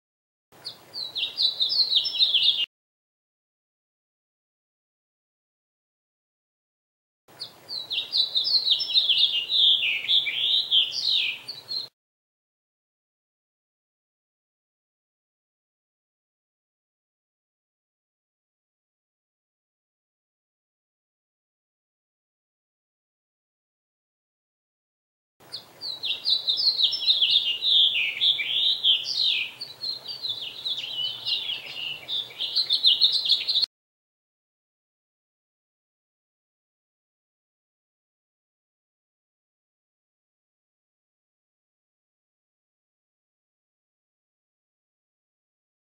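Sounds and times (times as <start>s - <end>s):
small birds chirping: 0.6s - 2.7s, 7.3s - 11.9s, 25.4s - 33.7s.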